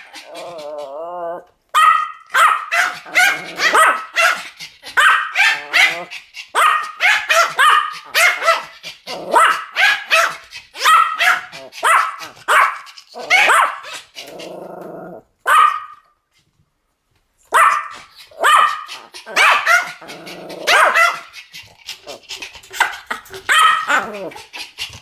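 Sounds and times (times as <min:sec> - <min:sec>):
dog growling: 0:00.0 - 0:01.5, 0:02.9 - 0:06.5, 0:08.0 - 0:09.6, 0:10.3 - 0:15.3, 0:18.3 - 0:25.0
small dogs barking: 0:01.8 - 0:14.4, 0:15.4 - 0:16.0, 0:17.5 - 0:24.8.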